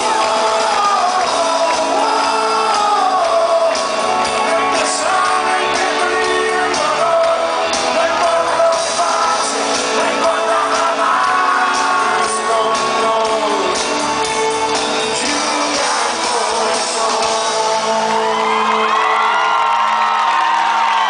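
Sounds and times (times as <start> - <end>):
crowd shouting and whooping: 0.0 - 12.6, 17.2 - 21.0
live rock band music: 0.0 - 19.8
lead vocal singing: 0.0 - 20.0
drums: 0.0 - 21.0.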